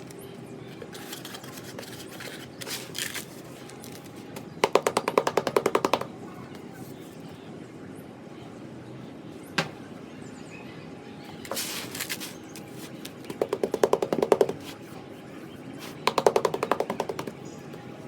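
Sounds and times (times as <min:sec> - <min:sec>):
rapid tapping on cement blocks: 0:04.4 - 0:06.1, 0:13.0 - 0:14.8, 0:15.9 - 0:17.5.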